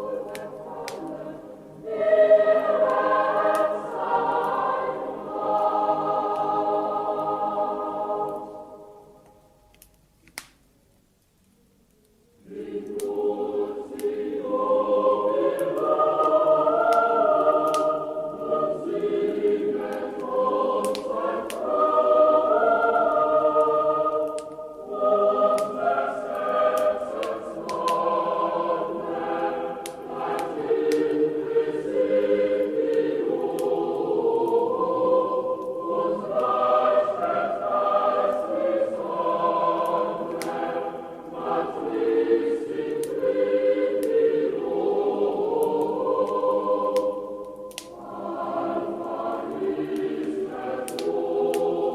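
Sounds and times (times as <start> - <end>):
choir singing slow chords: 0.0 - 10.5, 12.1 - 51.9
faint crackles: 8.2 - 14.3, 45.2 - 51.9.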